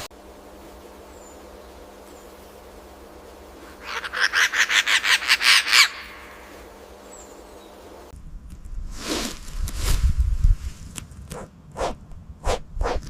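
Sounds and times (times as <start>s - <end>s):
bird chattering call: 3.7s - 6.6s.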